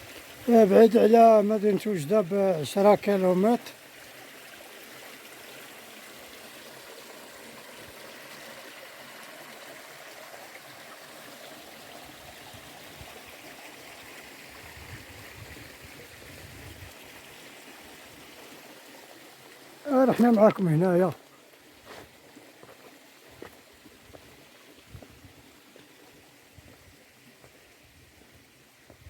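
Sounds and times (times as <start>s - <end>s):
water flowing over stones: 0.0s - 29.0s.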